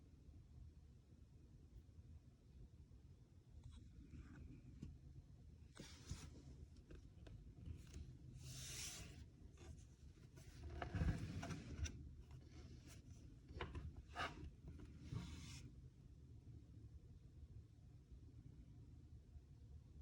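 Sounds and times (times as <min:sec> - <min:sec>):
faint rubbing and hissing: 0:05.6 - 0:15.8.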